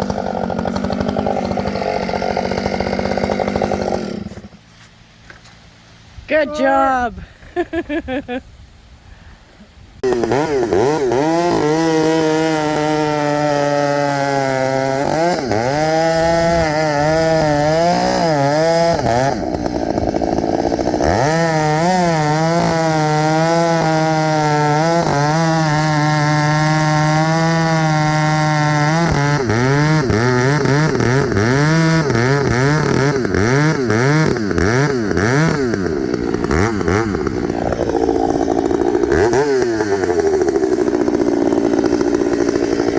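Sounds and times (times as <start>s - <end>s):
chainsaw cutting wood: 0.0s - 5.7s, 10.0s - 42.9s.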